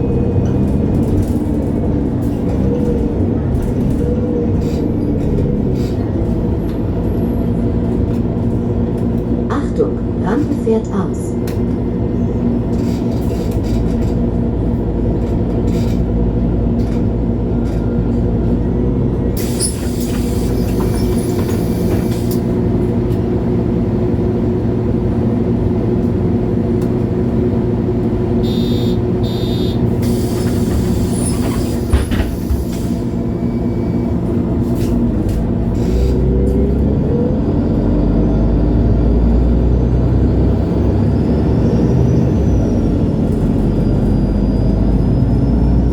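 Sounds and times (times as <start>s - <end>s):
bus diesel engine running: 0.0s - 45.9s.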